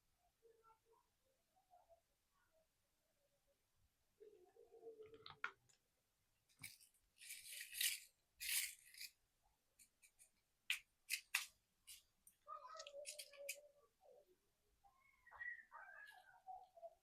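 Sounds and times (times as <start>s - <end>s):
plastic wrappers crinkling and tearing: 6.6s - 9.1s.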